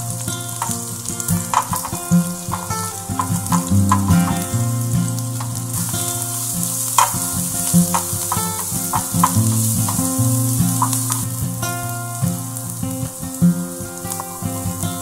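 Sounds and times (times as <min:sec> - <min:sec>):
garlic and shallots sizzling in oil: 0:00.0 - 0:15.0
spatula clicking against pan: 0:00.3 - 0:11.4.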